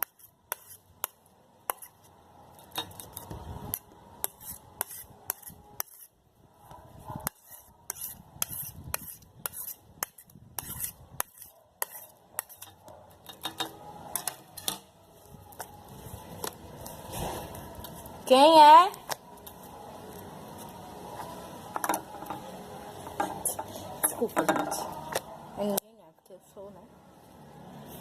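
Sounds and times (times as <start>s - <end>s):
spoon scraping a plate: 7.3s - 14.9s.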